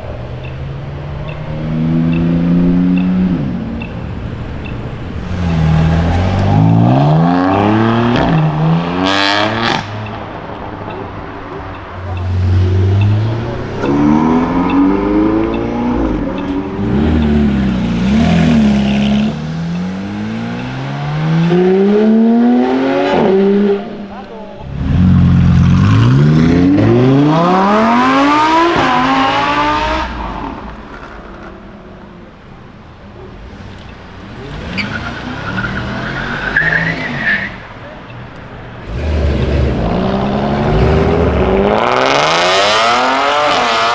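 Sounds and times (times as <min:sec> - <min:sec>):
car engine accelerating hard: 0:12.0 - 0:31.5, 0:38.8 - 0:43.9.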